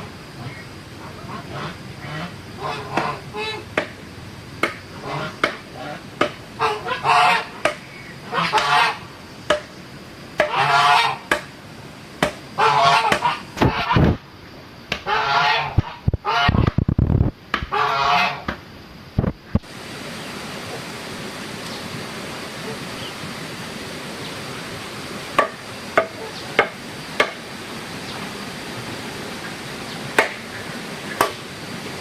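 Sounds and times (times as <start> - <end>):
waterfowl honking: 0.4 - 3.8, 4.9 - 9.2, 10.4 - 11.4, 12.6 - 14.0, 15.0 - 16.6, 17.7 - 18.5
steady rushing noise: 15.7 - 17.6.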